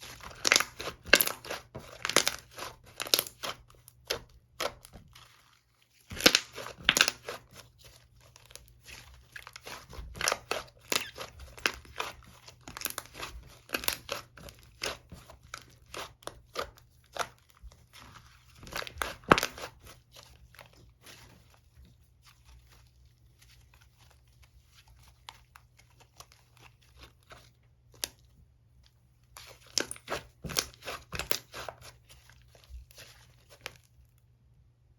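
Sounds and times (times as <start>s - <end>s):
slime squished by hand: 29.4s - 33.9s.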